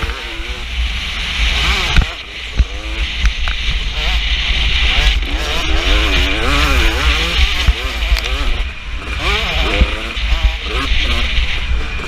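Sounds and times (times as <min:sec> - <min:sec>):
motocross engine revving: 0:00.0 - 0:12.0.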